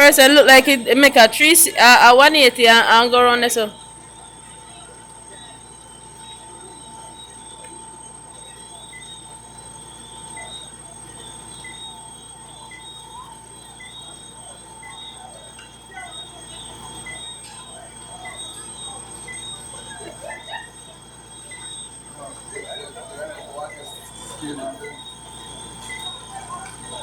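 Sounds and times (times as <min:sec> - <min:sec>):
night insects chirping: 0:00.0 - 0:27.0.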